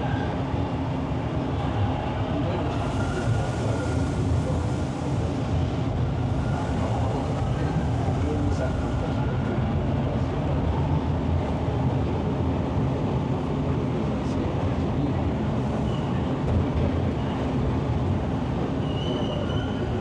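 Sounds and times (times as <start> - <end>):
subway train rumbling: 0.0 - 20.0
faint high squeal: 15.8 - 16.3, 18.8 - 20.0.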